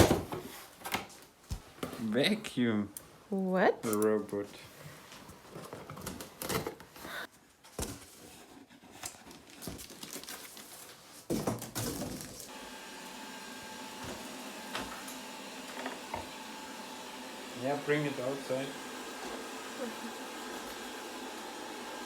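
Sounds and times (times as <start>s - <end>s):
robot vacuum humming: 12.5s - 22.0s.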